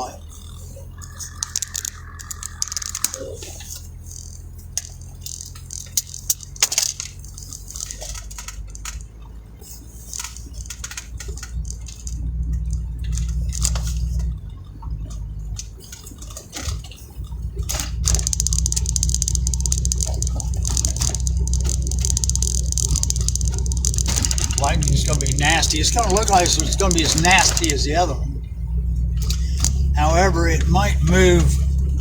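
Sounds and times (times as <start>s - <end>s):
vehicle engine running: 0.0s - 32.0s
sharp taps and clicks: 1.0s - 9.1s, 17.6s - 28.2s.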